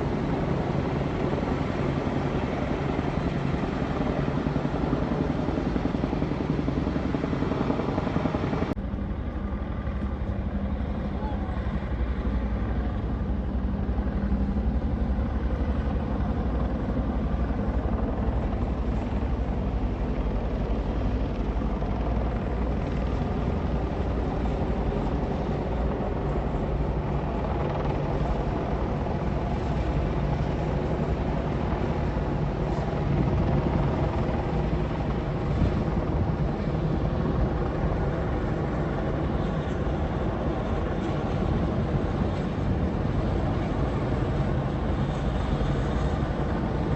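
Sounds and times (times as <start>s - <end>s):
helicopter flying over: 0.0s - 46.9s.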